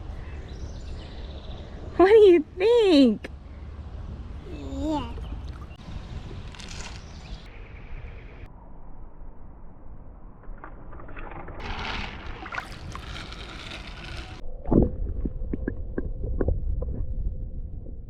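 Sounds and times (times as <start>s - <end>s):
wind rumble on microphone: 5.1s - 8.5s, 9.1s - 18.0s
water splashing: 5.2s - 6.1s, 11.0s - 14.4s.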